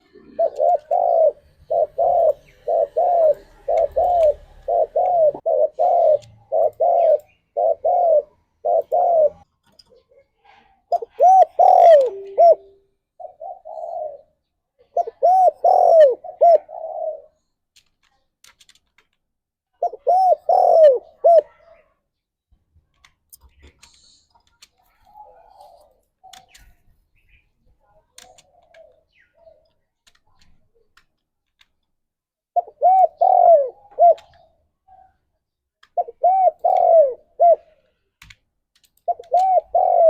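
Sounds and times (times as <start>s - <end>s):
dove cooing: 0.0s - 9.5s, 10.9s - 17.4s, 19.8s - 21.9s, 24.9s - 26.8s, 28.2s - 29.6s, 32.6s - 35.2s, 36.0s - 37.9s, 39.0s - 40.0s.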